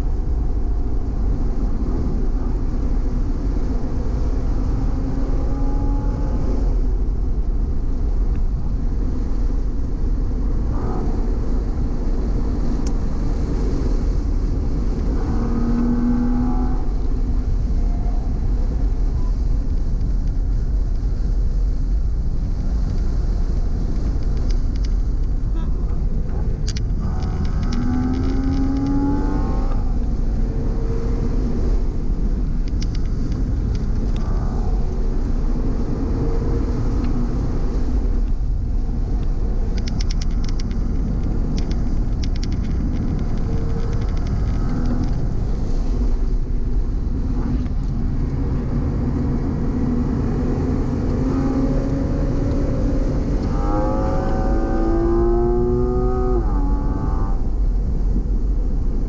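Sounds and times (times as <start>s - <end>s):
road and tyre noise: 0.0s - 59.0s
car engine accelerating: 25.5s - 46.2s, 46.9s - 57.3s.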